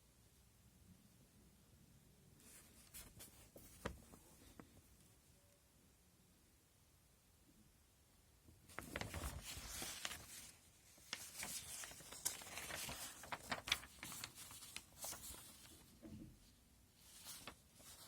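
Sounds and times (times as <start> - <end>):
packaging crinkling and rustling: 8.7 - 15.9.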